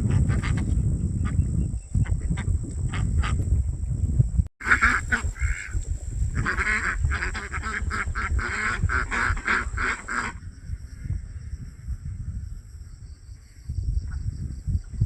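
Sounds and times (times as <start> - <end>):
ducks quacking: 0.0 - 3.4, 4.6 - 10.4.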